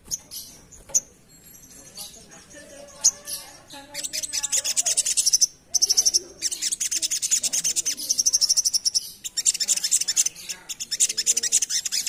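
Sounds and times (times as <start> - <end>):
sunbird singing chattering trill: 0.0 - 12.0.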